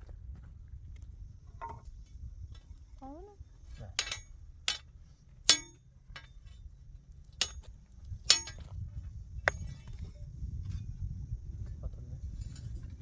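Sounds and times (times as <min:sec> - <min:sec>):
metal hand tool clinking: 0:04.0 - 0:04.8, 0:05.5 - 0:06.3, 0:07.4 - 0:07.7, 0:08.3 - 0:08.8.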